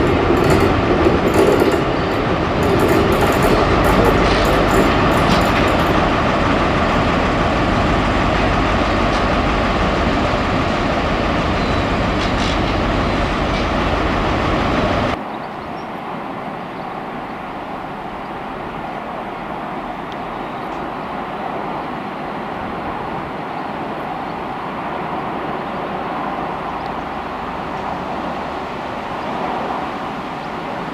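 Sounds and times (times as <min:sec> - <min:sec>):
train passing: 0:00.0 - 0:15.2, 0:20.9 - 0:30.9.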